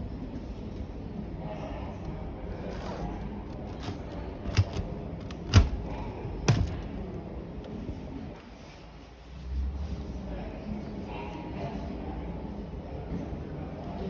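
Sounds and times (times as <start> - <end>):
sharp thuds: 2.7 - 7.1.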